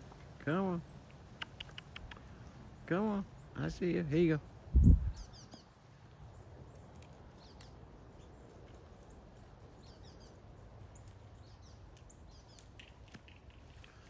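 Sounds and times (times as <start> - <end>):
low wind rumble: 2.2 - 12.6.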